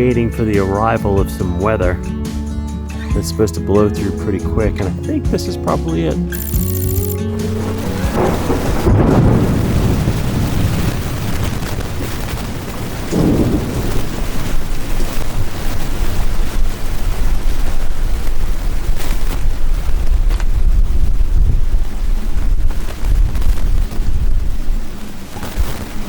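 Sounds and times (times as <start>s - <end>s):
strong wind gusting: 7.8s - 25.0s
wind buffeting microphone: 7.8s - 25.7s.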